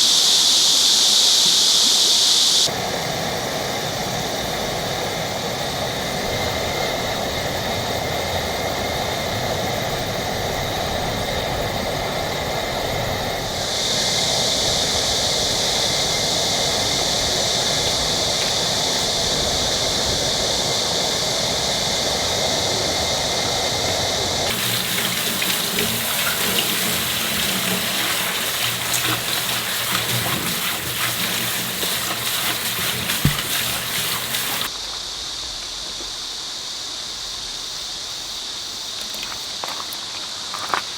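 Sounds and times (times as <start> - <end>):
mountain stream rushing: 24.5 - 34.7.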